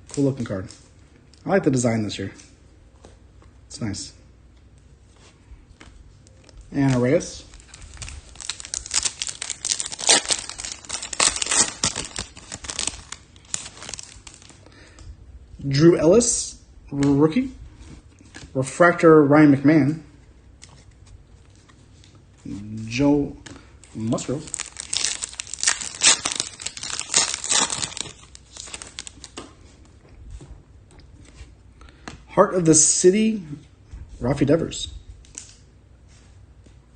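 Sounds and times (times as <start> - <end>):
cards crinkling and rustling: 5.8 - 14.7, 23.4 - 29.9.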